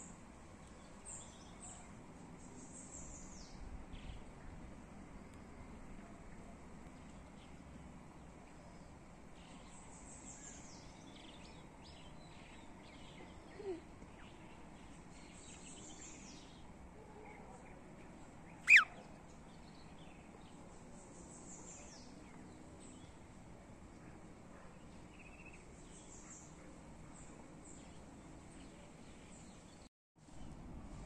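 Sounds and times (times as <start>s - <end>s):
outdoor background hiss: 0.0s - 31.0s
faint high bird calls: 18.5s - 19.1s
sharp bird chirp: 18.6s - 18.9s.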